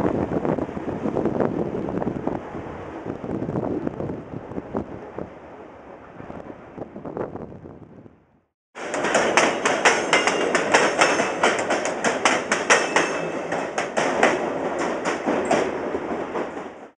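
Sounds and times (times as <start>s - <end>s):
train wheels clattering: 8.8s - 16.9s.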